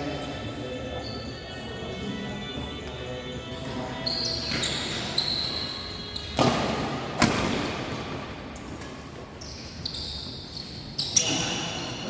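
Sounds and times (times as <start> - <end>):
short high squeaks: 4.0 - 6.9, 9.4 - 11.8.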